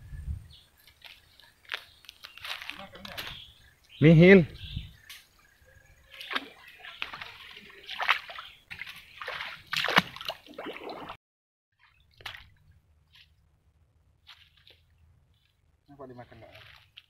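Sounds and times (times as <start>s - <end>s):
faint water drips: 6.1s - 11.0s
feet splashing in stream water: 6.1s - 11.2s, 11.8s - 13.3s, 16.4s - 17.0s.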